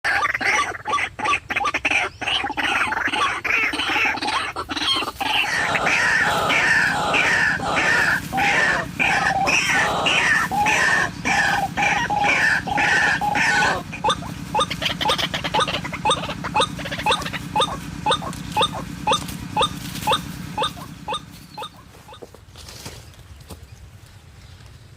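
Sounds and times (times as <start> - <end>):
waterhen croaking calls: 0.0 - 22.3
steady low hum: 2.1 - 22.5.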